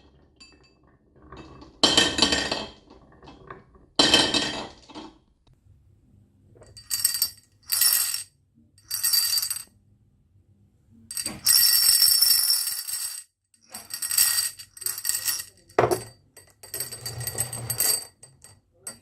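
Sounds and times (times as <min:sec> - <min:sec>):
marbles rolling down a track: 0:11.2 - 0:16.0.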